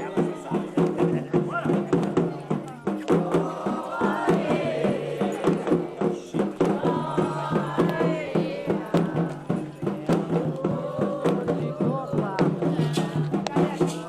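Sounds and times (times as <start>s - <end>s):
chanted singing: 0.0s - 14.0s
drums keeping a steady beat: 0.0s - 14.0s.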